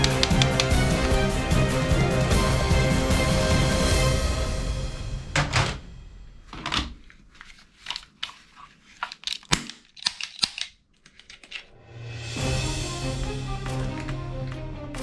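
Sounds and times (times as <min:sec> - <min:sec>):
plastic toy gun clicks and scrapes: 0:06.6 - 0:11.7.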